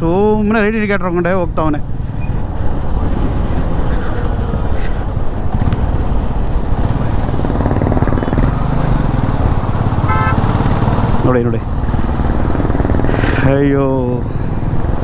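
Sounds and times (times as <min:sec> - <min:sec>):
wind rushing over microphone: 0:00.0 - 0:15.0
motorcycle engine running: 0:05.5 - 0:13.6.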